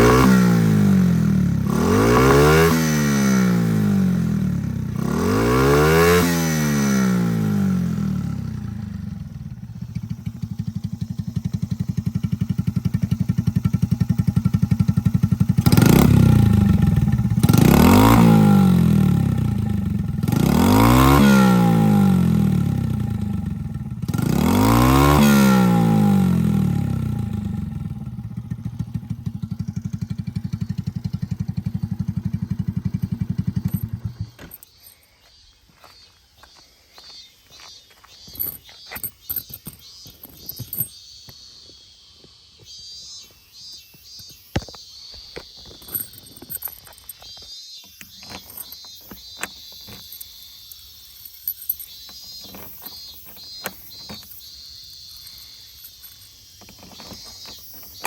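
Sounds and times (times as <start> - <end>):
scooter engine revving and idling: 0.0 - 34.7, 47.9 - 58.0.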